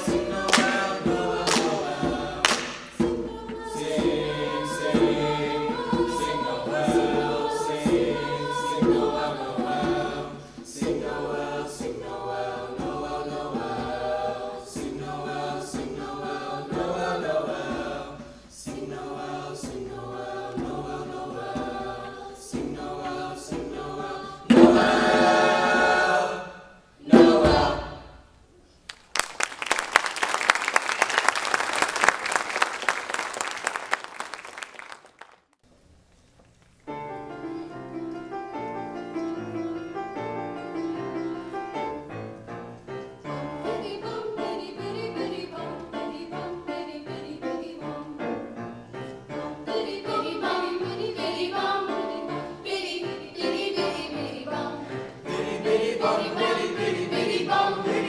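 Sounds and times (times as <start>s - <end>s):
choir singing: 0.0s - 28.4s, 37.0s - 58.0s.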